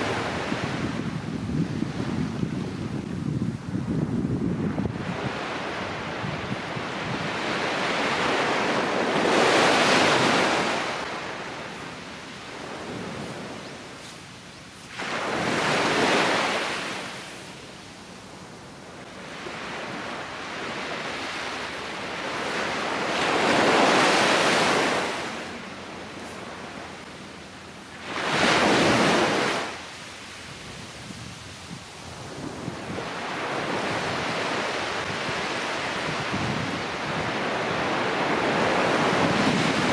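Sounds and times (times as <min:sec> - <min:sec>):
ocean surf breaking: 0:04.6 - 0:39.9.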